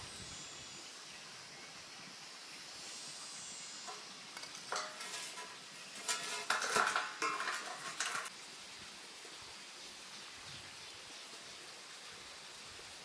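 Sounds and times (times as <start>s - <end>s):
faint steady hiss: 0.0s - 13.0s
metal pieces clattering: 3.9s - 8.3s.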